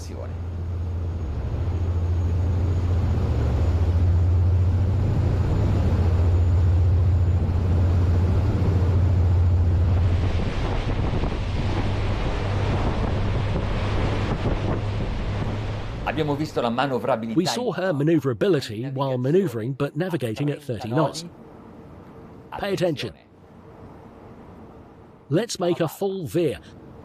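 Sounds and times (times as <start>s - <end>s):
wind and water rushing: 0.0s - 18.1s
boat engines droning: 0.0s - 27.0s.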